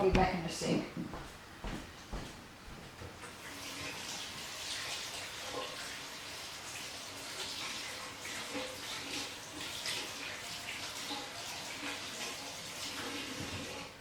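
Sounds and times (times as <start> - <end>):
tap water running into sink: 3.2 - 14.0.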